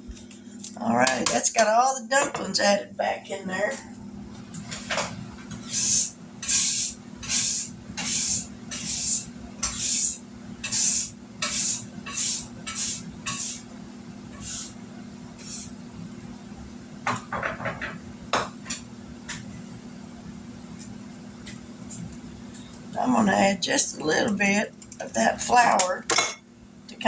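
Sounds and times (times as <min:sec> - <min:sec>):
steady low hum: 0:00.0 - 0:27.0
spoon stirring a pot: 0:05.6 - 0:13.6.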